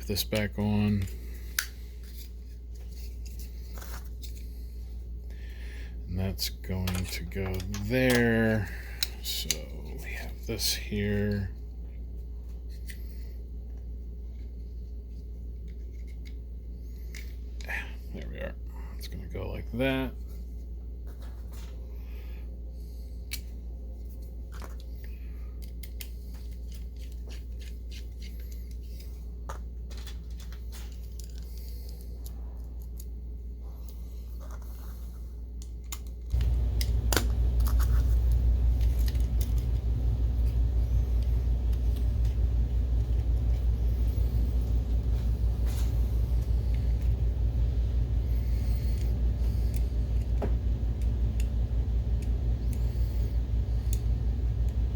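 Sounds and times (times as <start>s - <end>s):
steady low hum: 0.0s - 54.9s
loud pulsing low rumble: 36.4s - 54.9s.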